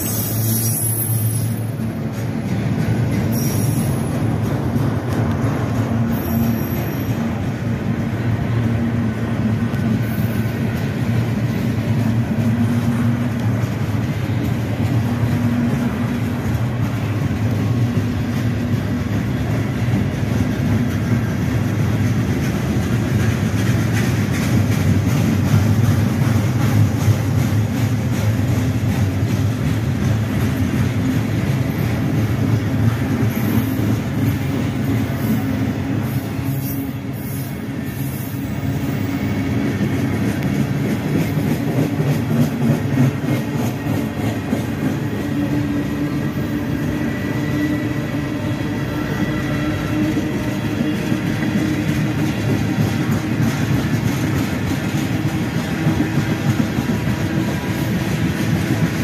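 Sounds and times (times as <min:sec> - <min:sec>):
thin wheel squeal: 0:00.0 - 0:01.7
freight train wheels rumbling: 0:00.0 - 0:59.0
wheels clicking over rail joints: 0:00.1 - 0:59.0.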